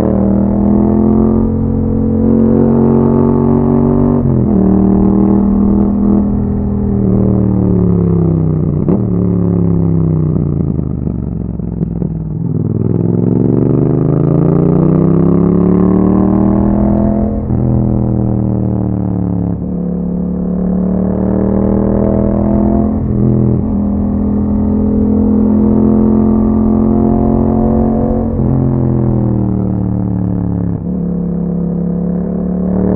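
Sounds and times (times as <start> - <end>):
motorcycle engine while riding: 0.0 - 32.9.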